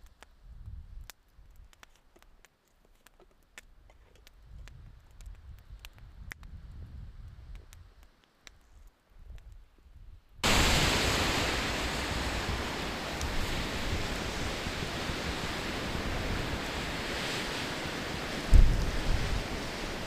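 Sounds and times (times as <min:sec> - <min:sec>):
blizzard wind rushing: 0:10.4 - 0:20.0.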